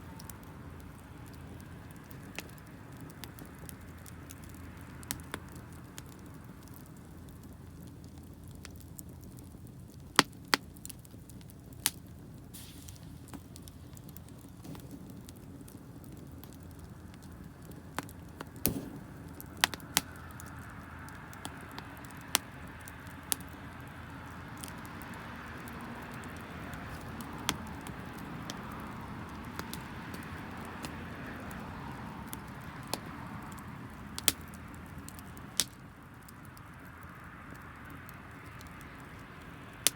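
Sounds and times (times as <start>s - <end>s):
fire crackling and popping: 0.0s - 39.9s
fire rushing: 0.0s - 39.9s
fire hissing: 10.1s - 39.9s.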